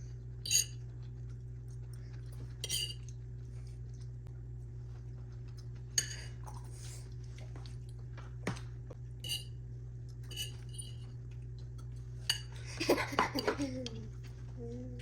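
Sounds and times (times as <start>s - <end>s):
steady low hum: 0.0s - 15.0s
utensils clinking on dishes: 0.5s - 0.8s, 2.6s - 3.1s, 6.0s - 6.4s, 9.2s - 9.6s, 10.2s - 11.1s, 12.2s - 14.0s.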